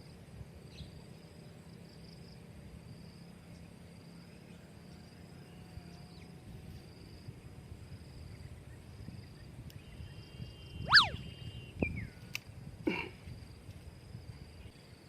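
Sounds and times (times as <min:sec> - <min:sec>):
insects chirping: 0:00.0 - 0:15.0
short loud sweeping whistle: 0:10.8 - 0:11.3.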